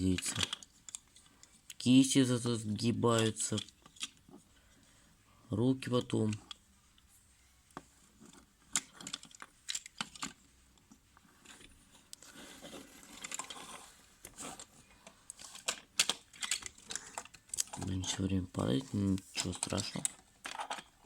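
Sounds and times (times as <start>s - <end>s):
plastic toy parts clicking: 0.0s - 1.9s, 3.1s - 4.2s, 5.8s - 6.6s, 8.3s - 10.4s, 13.2s - 13.6s, 15.3s - 21.0s
soft rustle: 5.9s - 20.4s.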